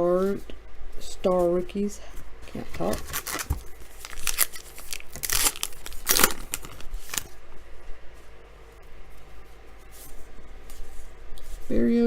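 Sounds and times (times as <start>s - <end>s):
foil wrapper rustling: 2.5s - 7.4s.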